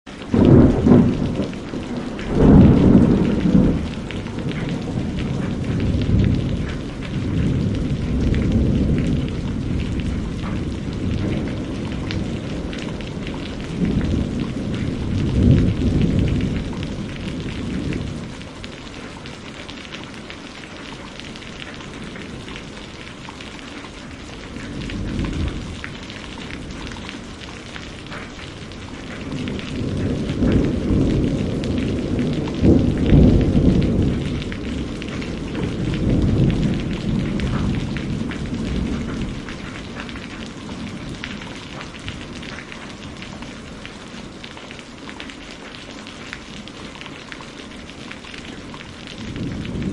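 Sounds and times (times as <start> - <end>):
steady rain falling: 0.0 - 49.9
thunder rolling: 0.2 - 19.1, 24.4 - 44.0, 48.6 - 49.9.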